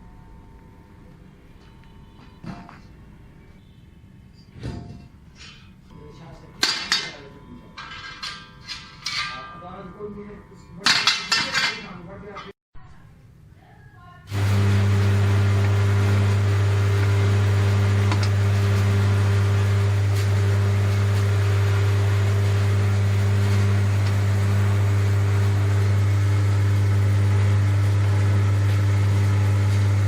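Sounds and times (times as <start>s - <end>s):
electric motor humming: 14.3s - 30.0s.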